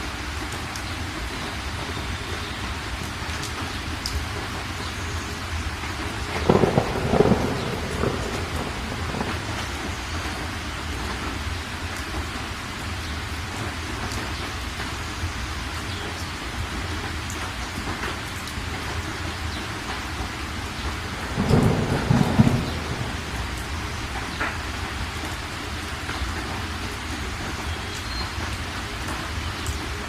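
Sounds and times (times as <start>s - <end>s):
heavy rain falling: 0.0s - 30.0s
thunder rumble: 6.0s - 11.5s, 19.9s - 25.5s.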